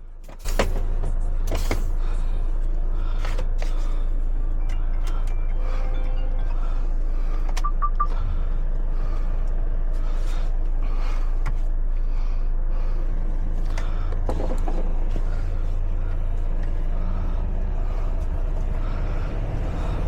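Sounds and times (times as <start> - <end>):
truck diesel engine droning: 0.0 - 20.0
short high beeps: 7.6 - 8.1.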